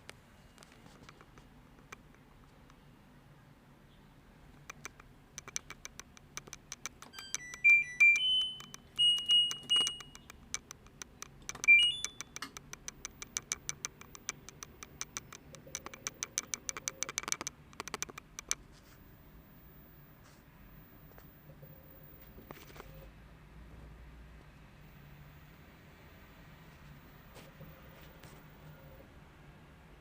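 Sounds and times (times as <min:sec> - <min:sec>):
rapid clicking: 0:04.6 - 0:07.6, 0:08.6 - 0:18.7
electronic beeps: 0:07.0 - 0:10.4, 0:11.5 - 0:12.5.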